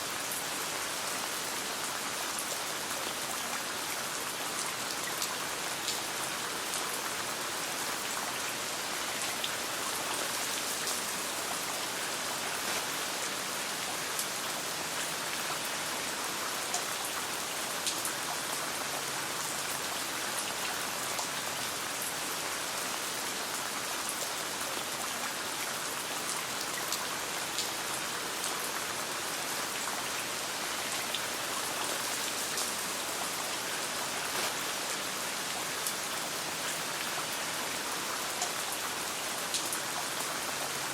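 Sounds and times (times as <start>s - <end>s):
steady rain falling: 0.0s - 40.9s
campfire crackle: 34.1s - 34.8s.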